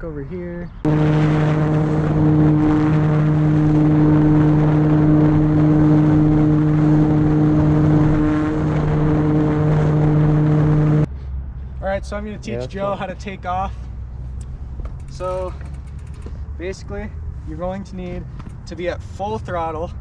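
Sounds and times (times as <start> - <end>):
electric motor buzzing drone: 14.9 - 16.3.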